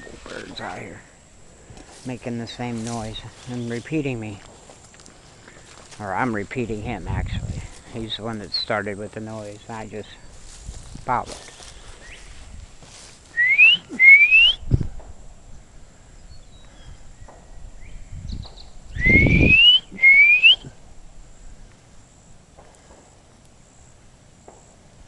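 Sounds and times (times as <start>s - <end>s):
person whistling bird call: 13.4s - 14.7s, 19.0s - 20.7s.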